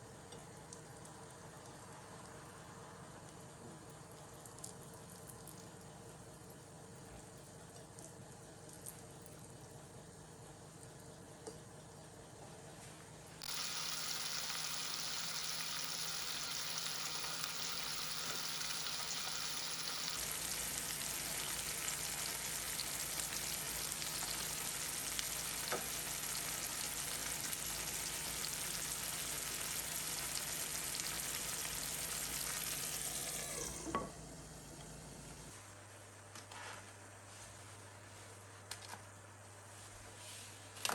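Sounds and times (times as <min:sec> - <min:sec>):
food sizzling in a frying pan: 0:13.4 - 0:33.7.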